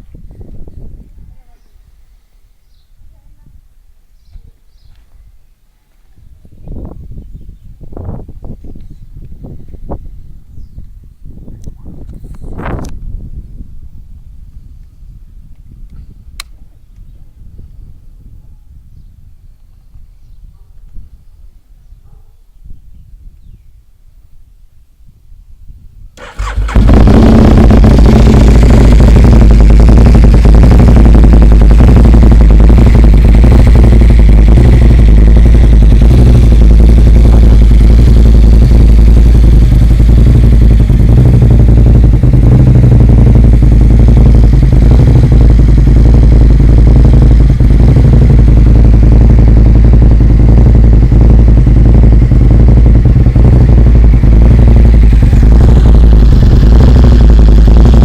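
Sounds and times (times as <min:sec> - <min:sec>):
loud motorcycle engine: 0:26.2 - 0:58.0.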